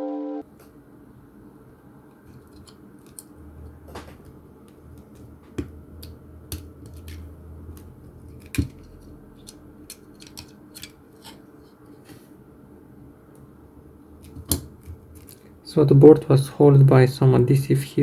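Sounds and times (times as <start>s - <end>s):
small clicks of tools and plastic: 7.8s - 11.4s.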